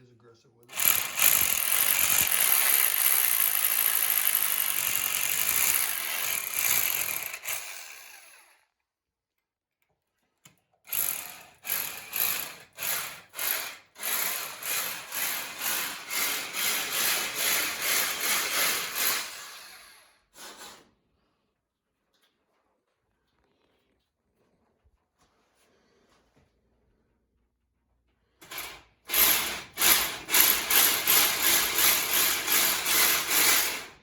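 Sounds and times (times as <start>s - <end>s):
power drill drilling into concrete: 0.7s - 8.6s, 10.9s - 20.9s, 28.4s - 34.0s.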